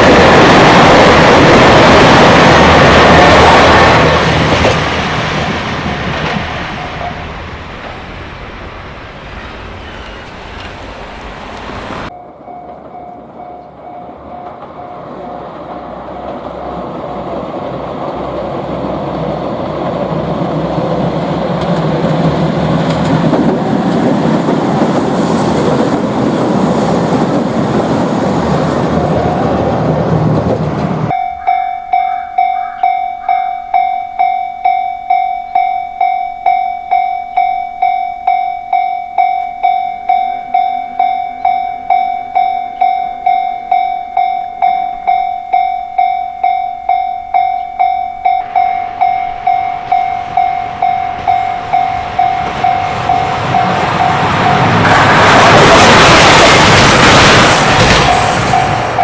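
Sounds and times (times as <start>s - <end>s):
train rumbling over rails: 0.0s - 59.0s
level-crossing bell clanging: 3.2s - 16.6s, 31.1s - 59.0s.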